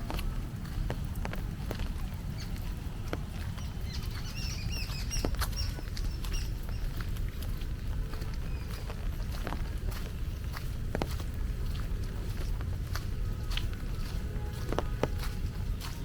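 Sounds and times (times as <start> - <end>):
dripping rain: 0.0 - 16.0
footsteps: 0.0 - 16.0
low steady rumble: 0.0 - 16.0
small bird chirping: 3.6 - 7.0.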